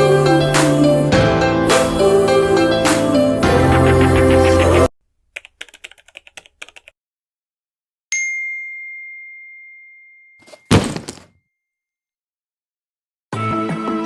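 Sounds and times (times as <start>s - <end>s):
bell-like ding: 8.1s - 10.8s.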